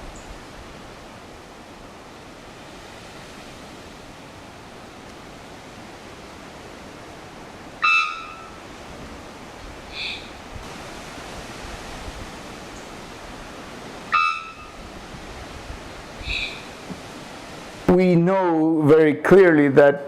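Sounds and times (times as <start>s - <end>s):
steady rushing outdoor noise: 0.0s - 18.6s
brief pitched call: 14.1s - 14.8s.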